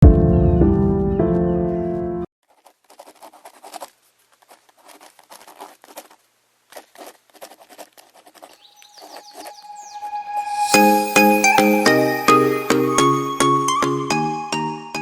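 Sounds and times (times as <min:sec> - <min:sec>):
drawing tool scratching paper: 0:02.5 - 0:08.6
chiming tune: 0:09.3 - 0:15.0.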